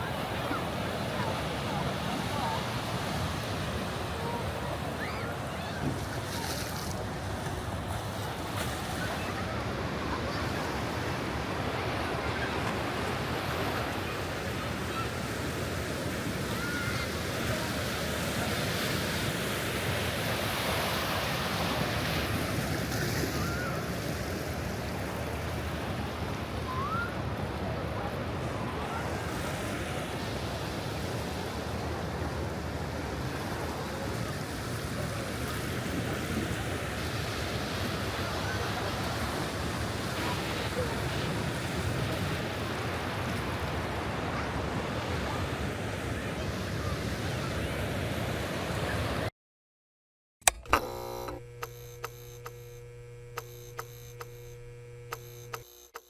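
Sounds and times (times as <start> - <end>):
ocean surf washing on beach: 0.0 - 49.3
light mechanical ticks: 50.4 - 56.0
sharp click: 50.4 - 56.0
steady low hum: 50.5 - 56.0.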